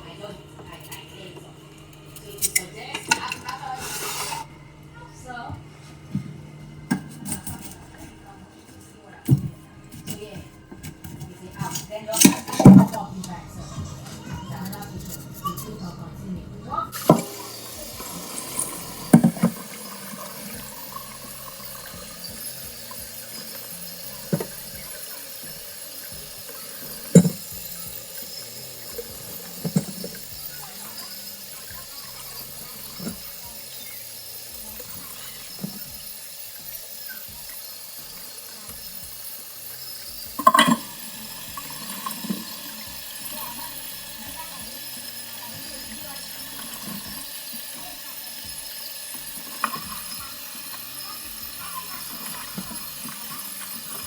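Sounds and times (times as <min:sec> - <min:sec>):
utensils knocking and clinking: 0:02.1 - 0:04.4, 0:09.3 - 0:13.4, 0:17.0 - 0:54.0
running water hiss: 0:02.5 - 0:04.5, 0:16.7 - 0:54.0.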